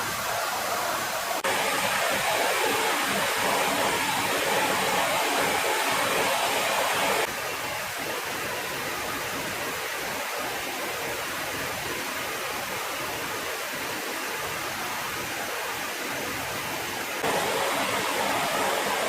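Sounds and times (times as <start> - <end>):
loud rushing noise: 1.4 - 7.3, 17.2 - 19.0.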